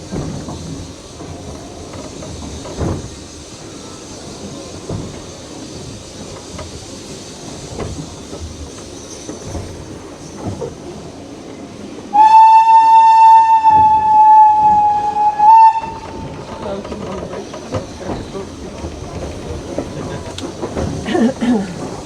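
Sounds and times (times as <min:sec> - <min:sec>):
steam locomotive whistle blast: 0:12.1 - 0:16.1.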